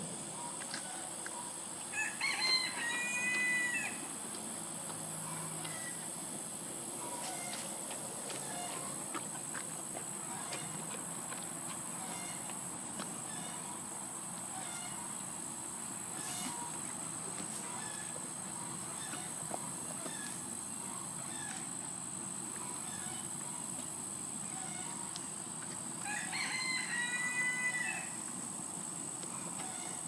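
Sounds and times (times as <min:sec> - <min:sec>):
high-pitched background hum: 0:00.0 - 0:30.0
rooster crowing: 0:01.9 - 0:04.1, 0:26.0 - 0:28.2.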